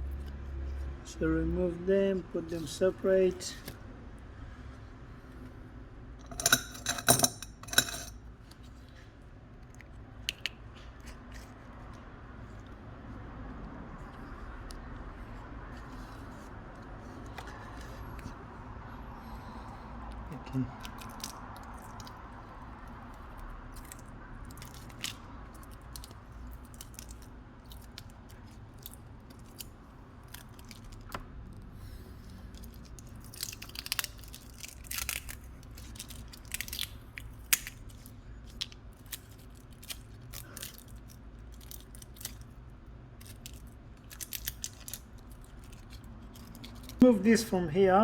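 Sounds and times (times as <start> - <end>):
low steady hum: 0.0 - 23.4.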